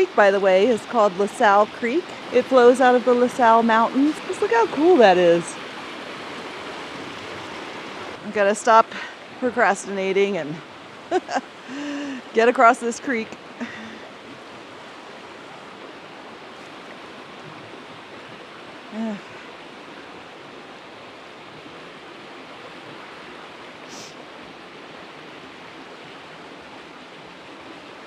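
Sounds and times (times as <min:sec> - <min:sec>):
creek rushing over rocks: 0:00.0 - 0:28.0
person making brief vocal sound: 0:18.9 - 0:19.3.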